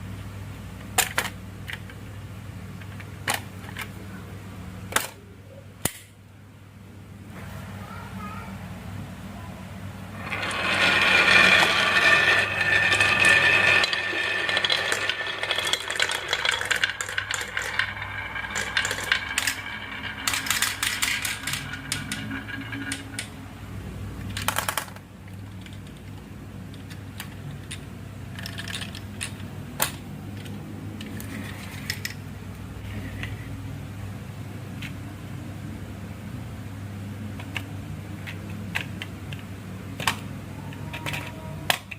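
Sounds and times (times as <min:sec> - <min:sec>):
glass marbles rolling on wooden track: 0:10.2 - 0:23.6, 0:28.3 - 0:29.4.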